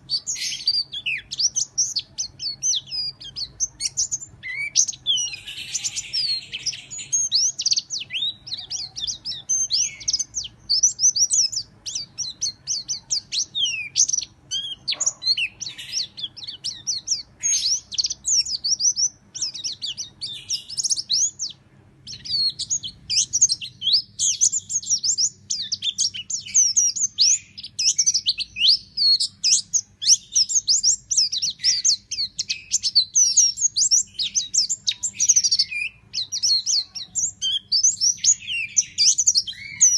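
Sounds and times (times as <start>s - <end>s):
bird singing fast high chirps: 0.0s - 39.9s.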